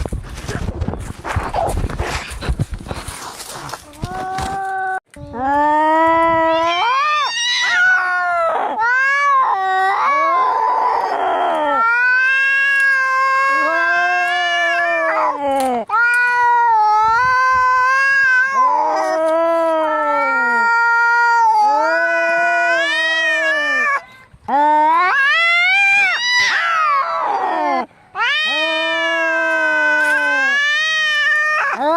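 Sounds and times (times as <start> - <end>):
cats yowling in a fight: 6.3 - 24.0, 24.6 - 31.9.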